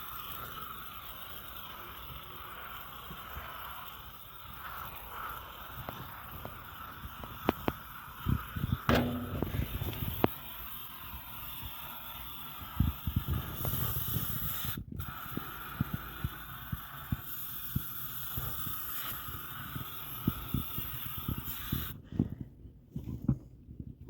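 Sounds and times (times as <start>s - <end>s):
knocks and rubs of handling: 8.9s - 10.3s.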